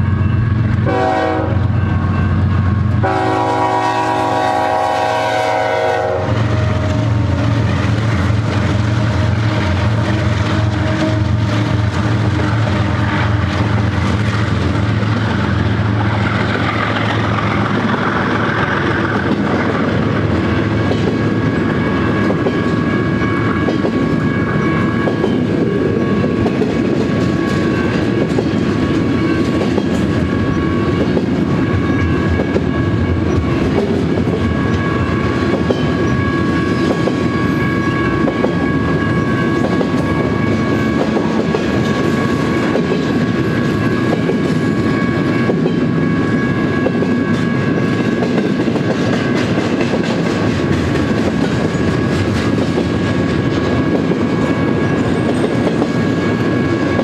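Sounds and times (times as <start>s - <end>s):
crossing signal ringing: 0.0s - 16.0s, 20.3s - 48.3s
diesel locomotive drone: 0.0s - 57.0s
freight cars rumbling and rattling: 6.4s - 57.0s.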